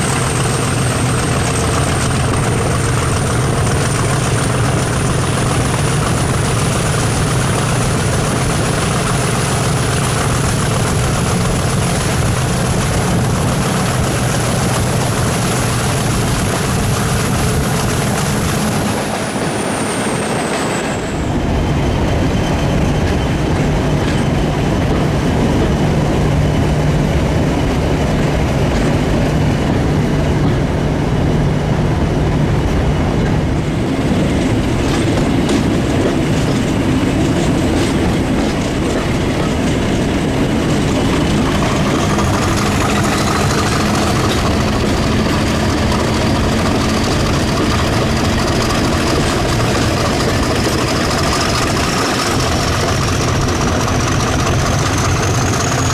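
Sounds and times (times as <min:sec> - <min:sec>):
wheels clicking over rail joints: 0:00.0 - 0:21.0, 0:32.6 - 0:55.9
diesel train engine: 0:00.0 - 0:55.9.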